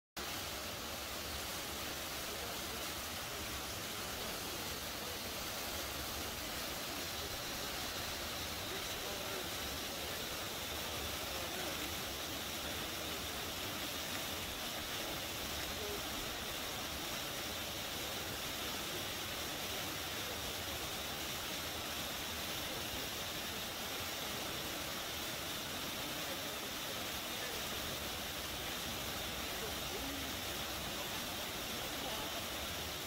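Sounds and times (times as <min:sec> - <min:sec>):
river water rushing: 0:00.2 - 0:33.0.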